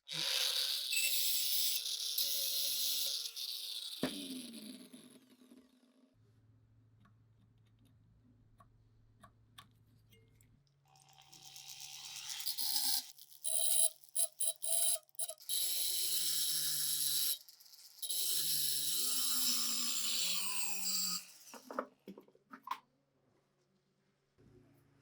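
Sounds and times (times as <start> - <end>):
hissing power tool on metal: 18.0 - 21.7.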